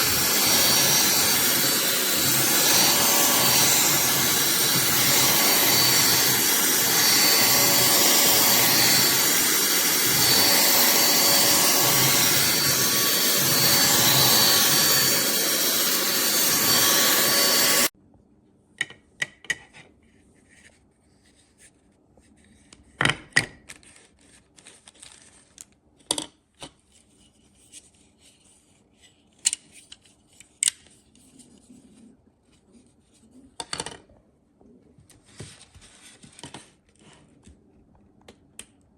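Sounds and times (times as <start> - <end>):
handheld vacuum running: 0.0 - 17.9.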